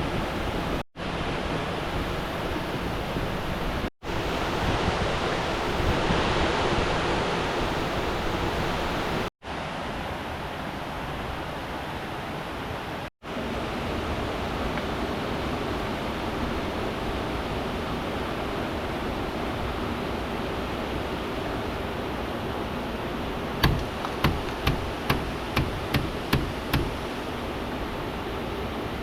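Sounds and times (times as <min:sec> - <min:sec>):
river water rushing: 0:23.3 - 0:29.0
sharp knocks: 0:23.6 - 0:27.1.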